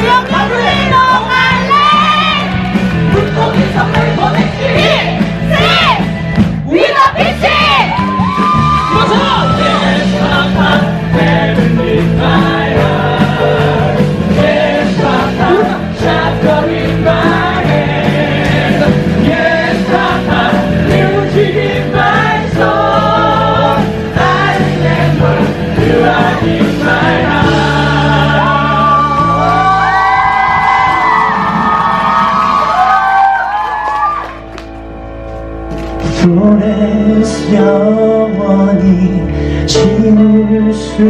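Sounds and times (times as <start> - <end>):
men singing with vibrato: 0.0 - 5.7, 8.7 - 29.8, 36.1 - 41.0
band playing: 0.0 - 40.8.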